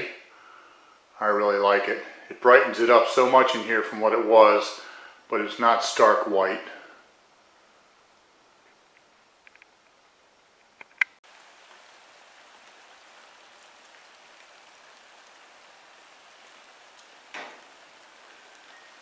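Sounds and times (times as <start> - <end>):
rain falling on pavement and puddle: 11.2 - 19.0.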